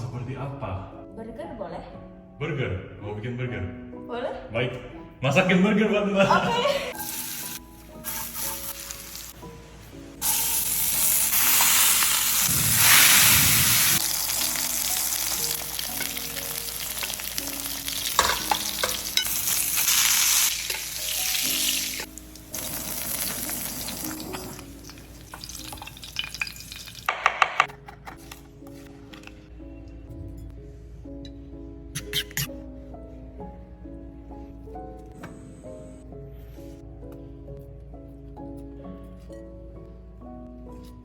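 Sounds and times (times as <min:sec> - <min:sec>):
food sizzling in a hot pan: 0:07.0 - 0:09.5, 0:10.2 - 0:27.1.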